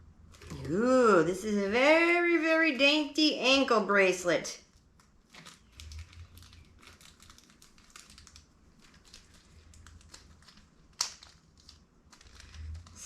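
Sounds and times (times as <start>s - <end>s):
packaging crinkling and rustling: 4.6s - 13.0s.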